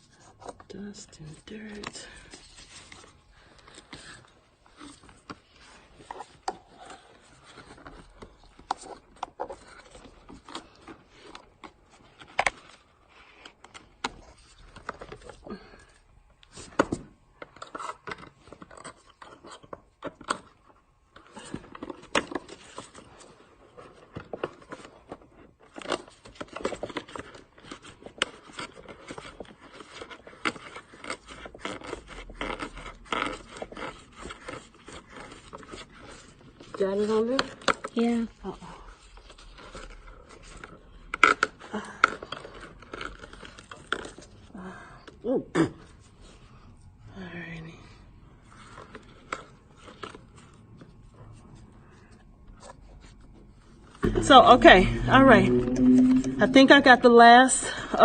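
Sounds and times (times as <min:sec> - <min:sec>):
scraping inside vacuum hose: 0:54.0 - 0:58.0.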